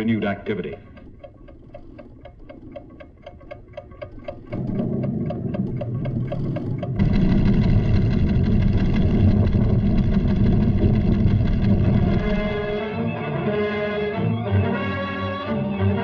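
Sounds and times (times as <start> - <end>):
instrument ticking: 0.0 - 10.1
volcano tremor rumble: 4.4 - 12.9.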